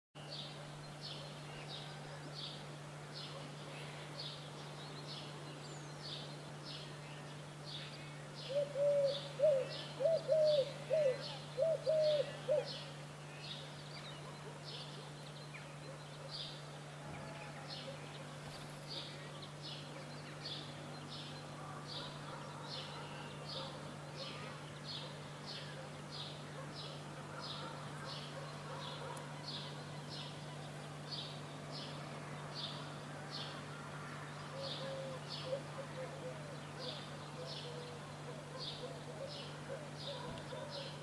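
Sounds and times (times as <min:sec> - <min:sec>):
bird giving low arched calls: 0:08.4 - 0:13.0, 0:33.1 - 0:41.0.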